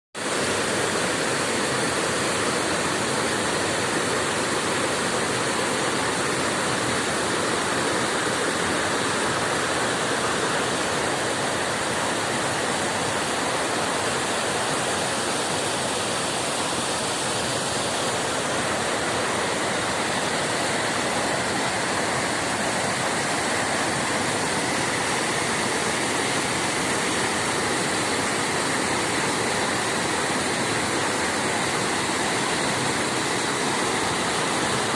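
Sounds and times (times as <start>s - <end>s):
river water rushing: 0.2s - 34.9s.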